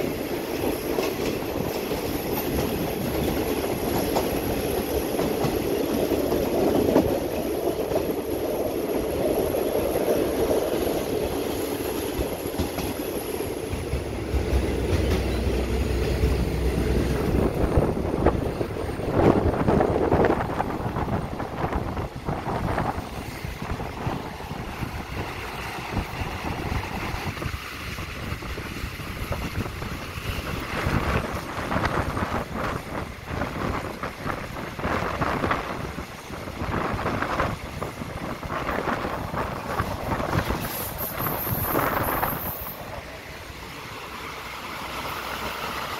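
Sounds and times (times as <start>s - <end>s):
wind buffeting the microphone: 0.0s - 43.0s
train wheels clattering on rails: 0.0s - 45.9s
high hiss: 40.3s - 45.9s.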